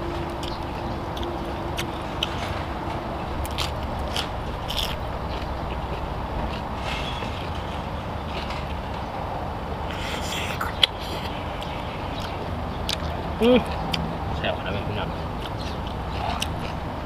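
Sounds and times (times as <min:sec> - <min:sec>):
steady background noise: 0:00.0 - 0:17.0
lettuce crunching while chewing: 0:03.4 - 0:06.7, 0:15.4 - 0:16.8
wet mouth sounds: 0:09.9 - 0:14.0.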